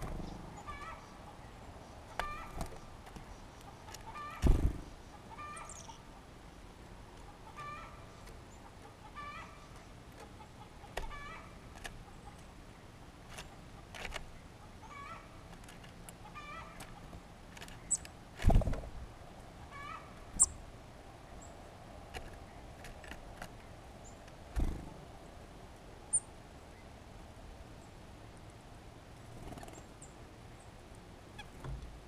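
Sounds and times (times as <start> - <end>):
bird call: 0.5 - 1.2, 2.1 - 2.7.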